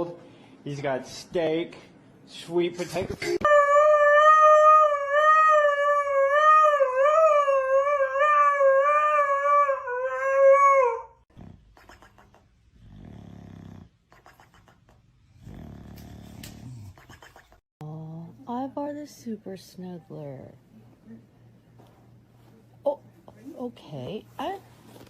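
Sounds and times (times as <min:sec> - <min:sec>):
dog howling: 0:03.4 - 0:11.2.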